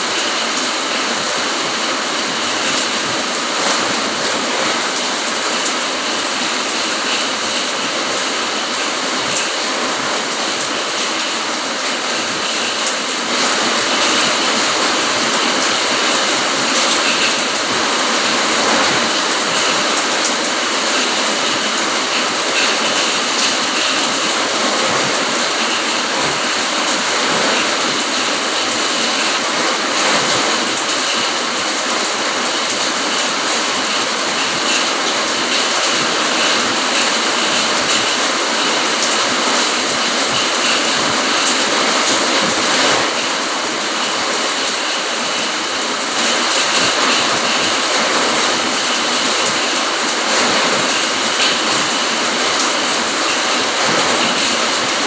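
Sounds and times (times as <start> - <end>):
rain falling: 0.0 - 55.0.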